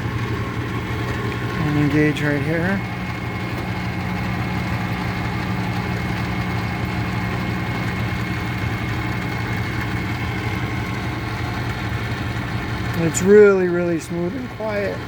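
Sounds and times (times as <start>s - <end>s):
metal lathe humming: 0.0s - 15.0s.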